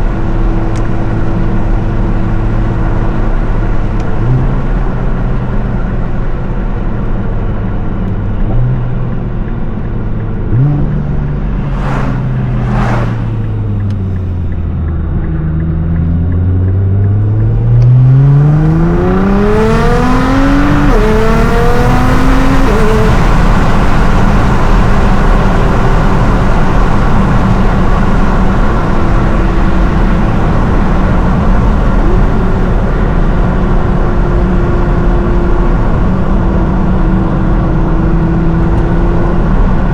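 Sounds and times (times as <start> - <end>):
road and wind hiss: 0.0 - 39.9
car engine revving: 6.8 - 39.8
exhaust cracks: 8.4 - 17.5.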